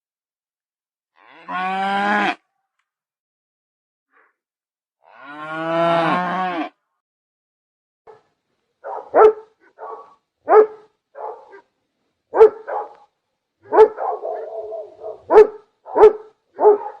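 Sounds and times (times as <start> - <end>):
animal barking: 8.1 - 11.7, 12.3 - 17.0.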